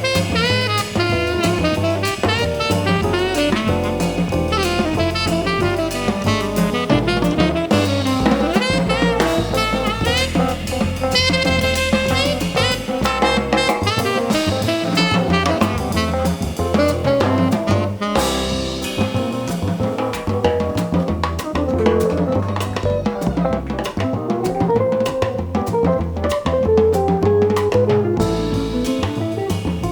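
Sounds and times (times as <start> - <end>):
saxophone melody: 0.0 - 19.6
drum kit with cymbals: 0.0 - 29.9
walking bass line: 0.0 - 29.9.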